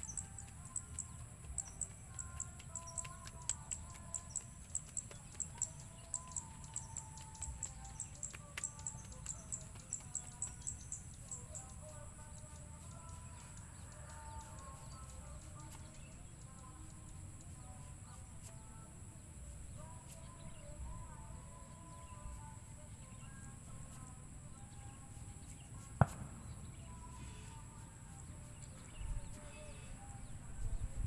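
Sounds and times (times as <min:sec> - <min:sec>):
small bird chirping: 0:00.0 - 0:18.8.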